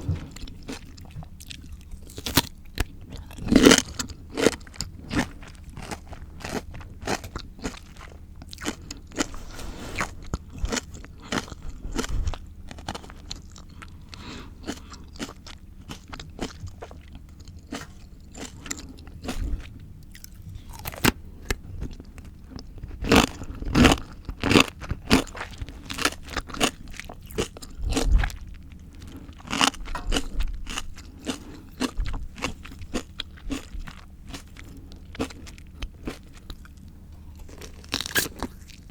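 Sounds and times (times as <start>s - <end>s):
crunching and chewing: 0.0s - 38.9s.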